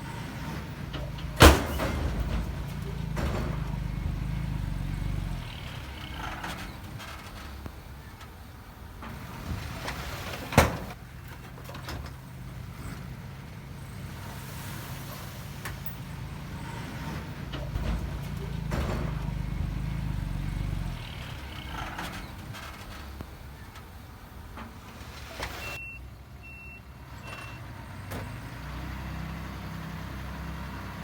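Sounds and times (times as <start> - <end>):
diesel machinery engine humming: 0.0 - 31.0.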